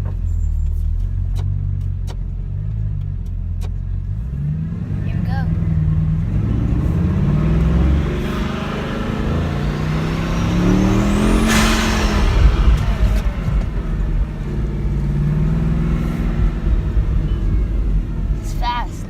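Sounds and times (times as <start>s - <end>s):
car engine accelerating: 0.0s - 19.0s
high turbo whistle: 8.2s - 18.0s.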